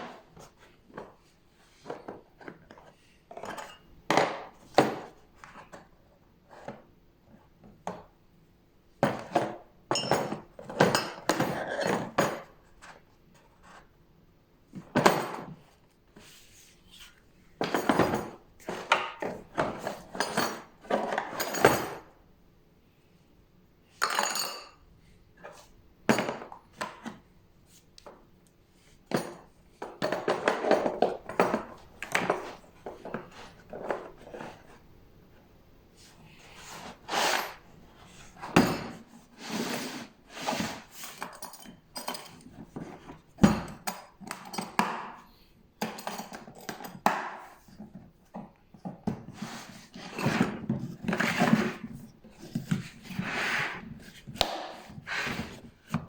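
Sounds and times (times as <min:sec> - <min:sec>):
hard objects clinking and knocking: 0:45.8 - 0:47.4.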